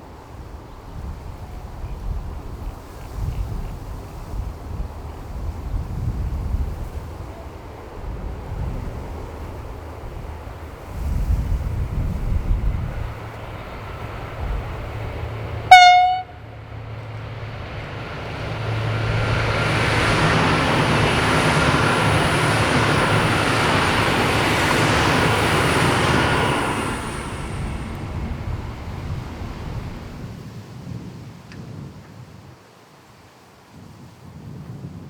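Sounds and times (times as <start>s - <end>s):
wheels rumbling on rail: 0.1s - 30.7s
train horn toot: 15.7s - 16.6s.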